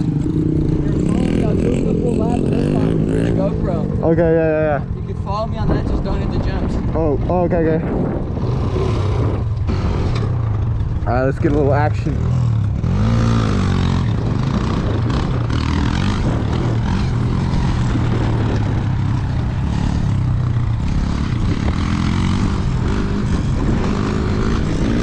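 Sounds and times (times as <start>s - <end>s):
wind rushing noise: 5.3s - 11.4s, 12.1s - 25.0s.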